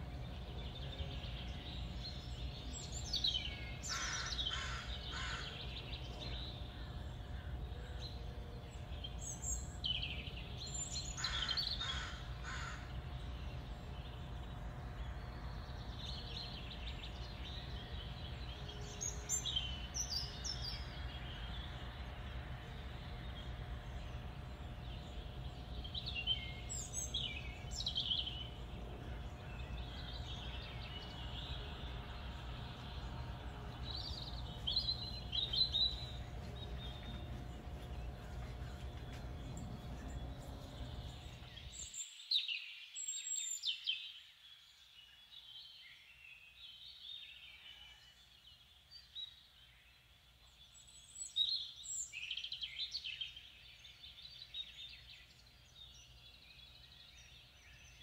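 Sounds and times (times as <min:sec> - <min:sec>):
low background rumble: 0:00.0 - 0:41.8
wild birds calling: 0:00.0 - 0:42.0.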